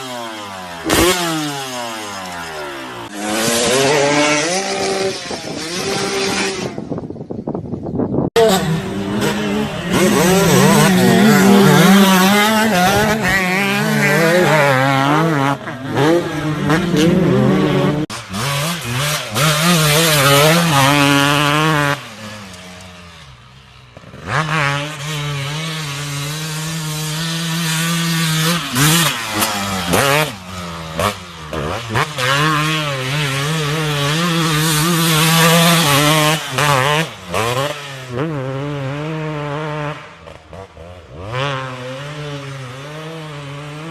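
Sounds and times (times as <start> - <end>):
motocross bike engine revving: 0.0 - 7.1, 8.4 - 43.9.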